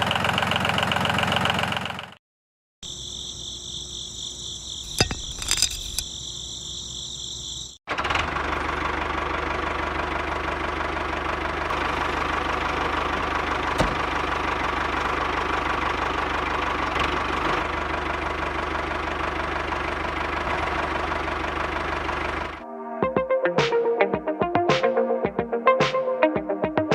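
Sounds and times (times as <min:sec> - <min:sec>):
engine-like running sound: 0:00.0 - 0:02.2, 0:07.9 - 0:22.6.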